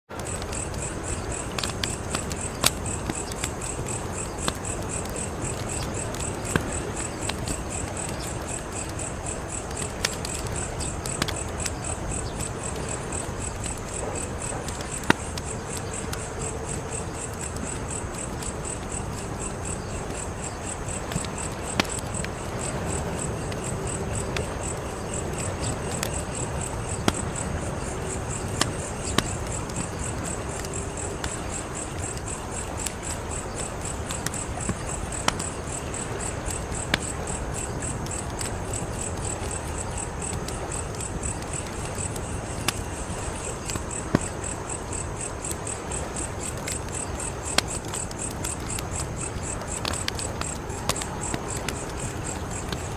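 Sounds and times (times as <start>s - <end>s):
cricket chirping: 0.1s - 52.9s
wood fire crackling and popping: 0.1s - 52.9s.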